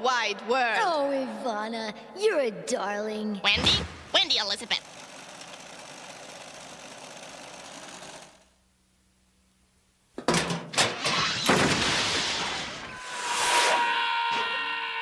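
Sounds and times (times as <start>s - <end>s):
clatter of hits and crash: 10.2s - 13.0s.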